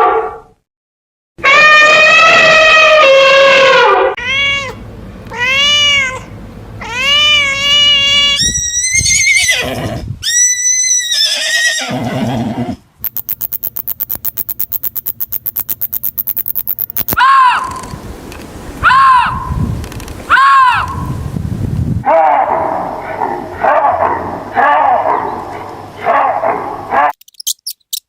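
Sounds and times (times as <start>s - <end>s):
fast run of sharp clicks: 13.0s - 18.5s.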